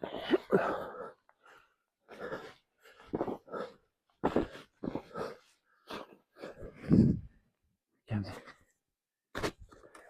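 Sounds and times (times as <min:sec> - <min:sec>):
person panting hard: 0:00.0 - 0:07.4.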